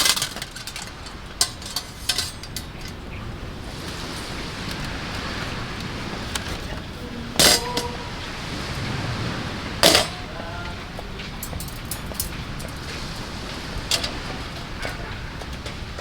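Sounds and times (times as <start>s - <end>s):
steady background hiss: 0.0s - 16.0s
sharp metal clanks ringing: 9.8s - 10.3s, 11.4s - 13.3s.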